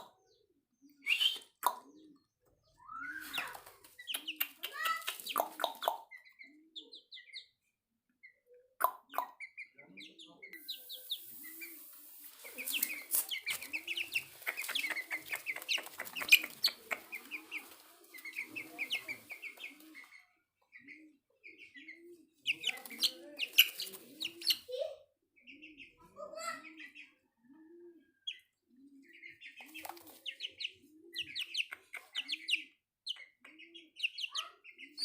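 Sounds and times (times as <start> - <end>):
chicks peeping: 1.1 - 7.6, 8.2 - 24.8, 25.4 - 27.2, 28.2 - 35.0
hen clucking: 9.2 - 20.2, 21.8 - 24.7, 29.2 - 34.9.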